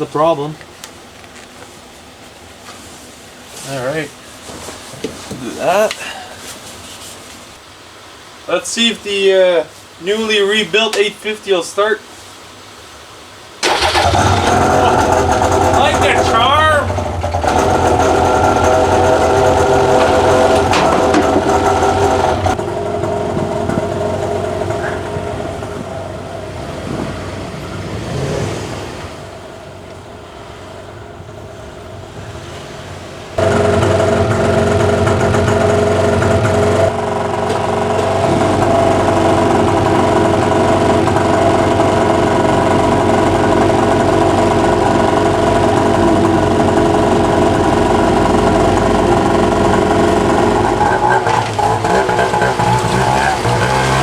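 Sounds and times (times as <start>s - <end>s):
snowmobile engine running: 13.6s - 29.4s, 33.4s - 54.0s.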